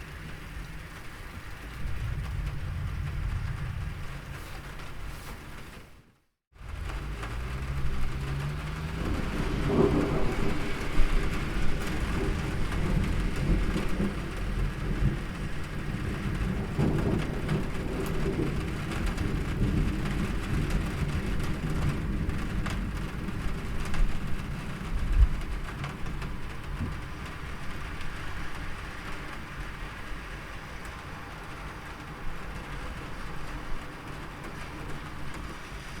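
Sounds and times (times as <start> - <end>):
steady rain: 0.0 - 36.0
distant thunder rumbling: 1.4 - 5.8, 6.6 - 29.8.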